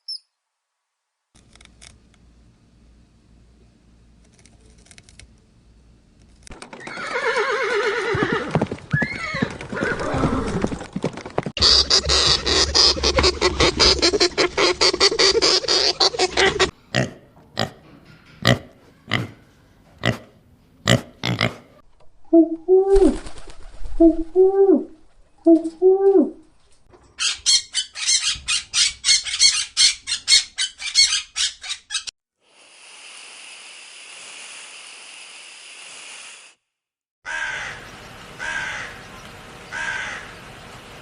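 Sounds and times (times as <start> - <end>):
fast pulsed animal calls: 11.6 - 16.7
rising and falling animal calls: 11.6 - 16.7.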